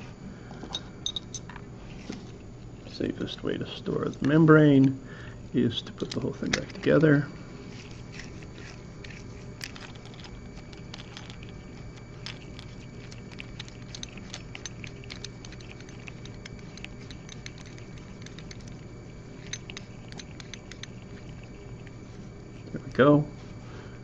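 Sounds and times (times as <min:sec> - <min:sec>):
steady low hum: 0:00.0 - 0:24.0
small metal parts clicking: 0:07.8 - 0:21.5.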